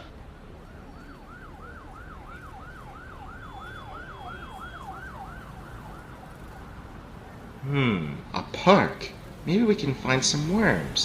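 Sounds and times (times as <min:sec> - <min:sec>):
emergency siren yelping: 0:00.0 - 0:07.6.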